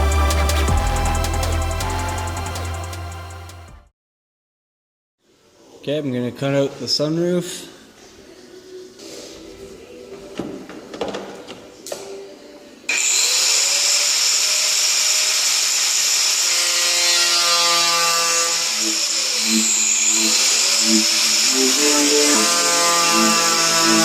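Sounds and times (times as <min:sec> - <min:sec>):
power tool cutting sheet metal: 0:12.9 - 0:24.0.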